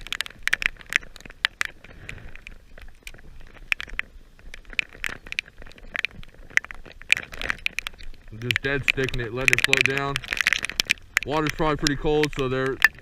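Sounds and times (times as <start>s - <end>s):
heavy rain drops tapping: 0.0s - 13.0s.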